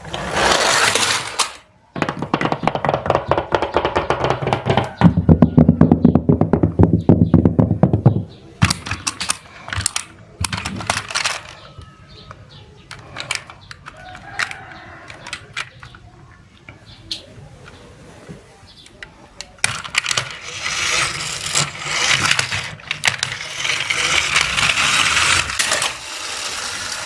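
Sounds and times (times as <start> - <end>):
scraping bursts: 0.0 - 6.2, 19.6 - 27.0
small hard objects clattering: 0.0 - 16.4, 19.0 - 27.0.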